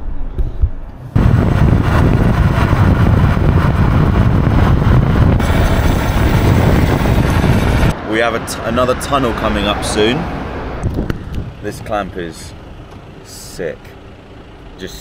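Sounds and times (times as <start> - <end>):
road and wind noise: 0.0 - 15.0
motorcycle engine: 1.2 - 8.1, 10.6 - 15.0.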